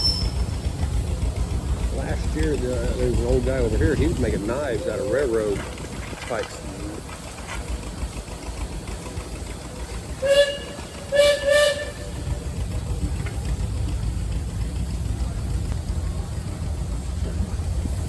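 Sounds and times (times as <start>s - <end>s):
low rumble of machinery: 0.0s - 18.0s
steam whistle blasts: 10.2s - 12.2s.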